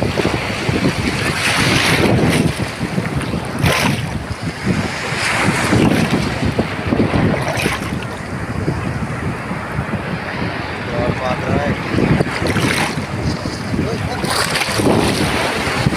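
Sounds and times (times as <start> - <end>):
sea waves breaking: 0.0 - 15.9
wind buffeting microphone: 0.0 - 15.9.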